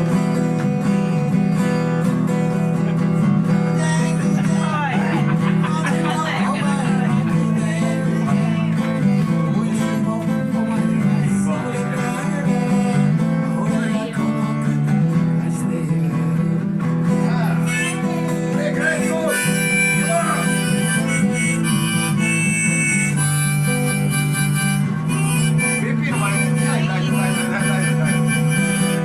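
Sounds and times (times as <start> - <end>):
harmonica: 0.0 - 9.3, 17.5 - 29.0
acoustic guitar music: 0.0 - 29.0.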